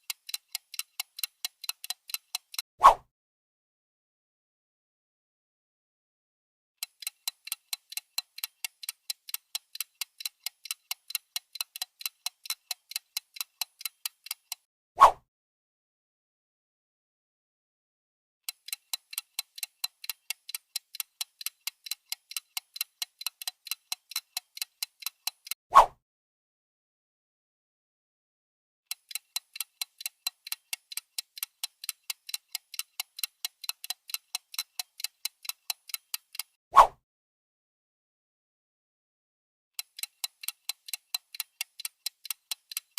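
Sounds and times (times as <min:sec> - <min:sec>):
clock ticking: 0:00.0 - 0:02.6, 0:06.8 - 0:14.7, 0:18.5 - 0:25.6, 0:28.9 - 0:36.6, 0:39.8 - 0:42.9.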